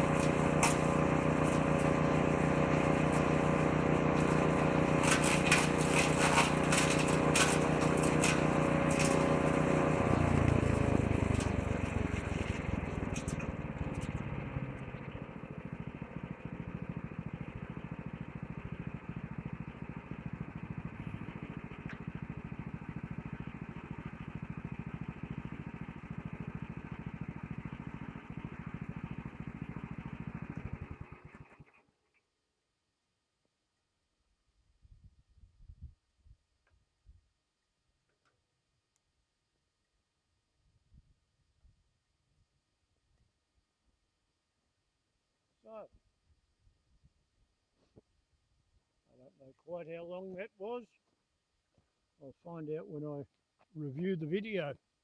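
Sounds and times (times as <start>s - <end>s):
clicks of material in chipper: 0.0s - 31.7s
shredder drum spinning down: 0.0s - 31.9s
woodchipper engine running: 0.0s - 31.9s.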